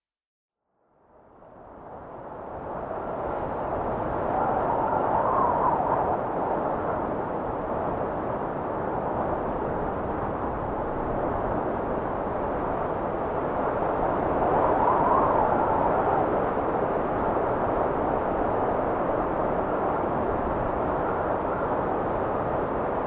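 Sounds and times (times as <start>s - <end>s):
wind blowing in gusts: 1.4s - 23.0s.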